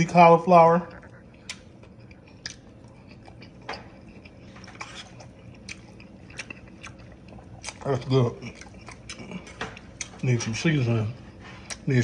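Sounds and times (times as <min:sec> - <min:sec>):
quiet chewing with small clicks: 0:00.1 - 0:12.0.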